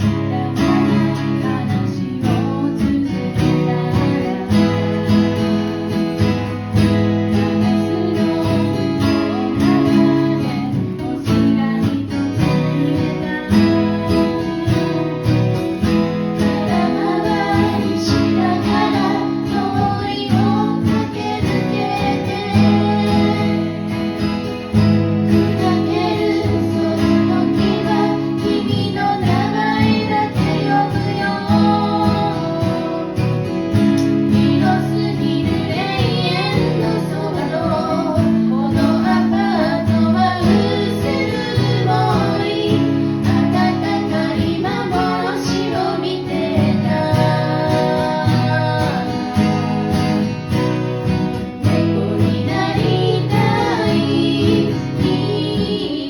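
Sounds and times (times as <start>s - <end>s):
person singing: 0.0s - 5.9s, 7.2s - 15.8s, 25.3s - 33.4s, 34.2s - 50.2s, 51.6s - 56.0s
acoustic guitar strumming: 0.0s - 56.0s.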